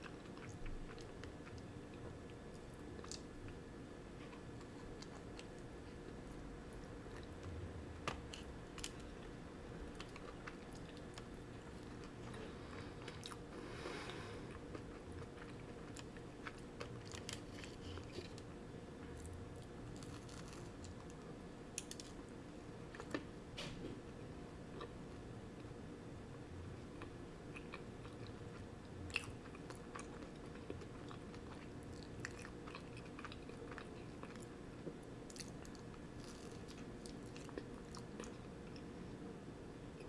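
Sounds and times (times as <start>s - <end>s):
faint steady hum: 0.0s - 40.0s
chewing and biting bread: 19.2s - 21.1s, 29.1s - 34.5s, 35.3s - 38.8s.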